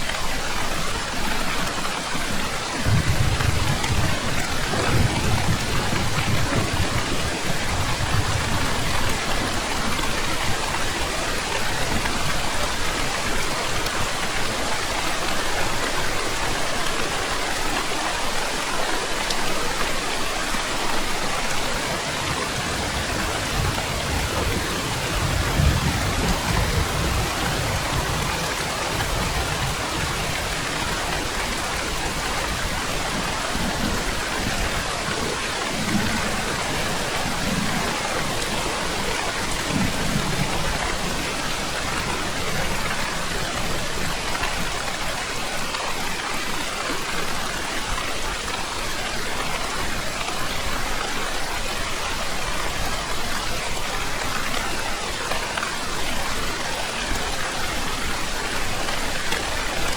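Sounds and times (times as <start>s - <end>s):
heavy rain falling: 0.0s - 59.9s
thunder rumbling: 2.8s - 12.7s, 21.7s - 43.8s.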